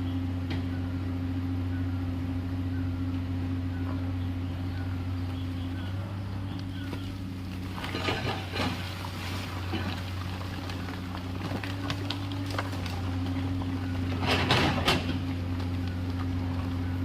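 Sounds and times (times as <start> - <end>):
excavator diesel engine running: 0.0 - 17.0
clatter and knocks: 7.7 - 8.9, 9.6 - 16.4.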